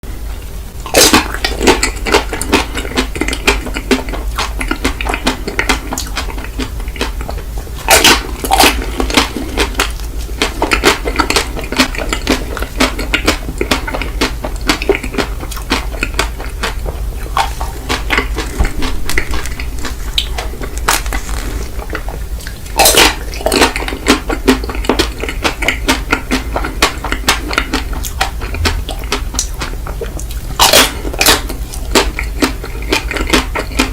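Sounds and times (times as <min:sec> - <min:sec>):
ice cream eating crunching: 0:00.3 - 0:33.9
low hum: 0:27.5 - 0:30.7.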